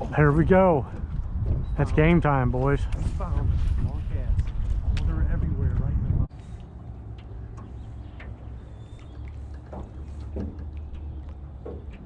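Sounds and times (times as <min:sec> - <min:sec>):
boat engine rumble: 0:00.0 - 0:12.0
small splashes: 0:06.4 - 0:12.0.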